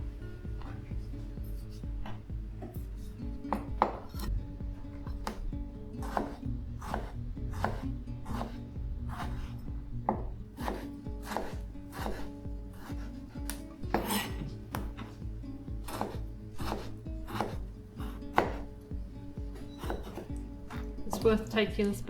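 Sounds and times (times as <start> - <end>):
soft background music: 0.0 - 22.0
knife chopping on a board: 3.5 - 4.3, 5.0 - 15.2, 15.8 - 18.8, 19.5 - 21.2.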